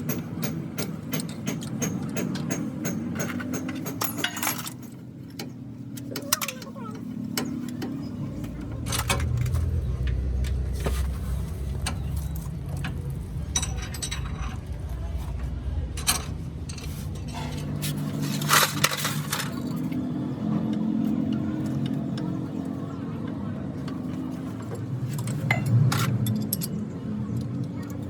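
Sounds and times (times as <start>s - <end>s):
metal parts clinking: 3.2s - 5.0s, 6.0s - 19.9s, 25.1s - 26.9s
steady low hum: 7.0s - 27.2s.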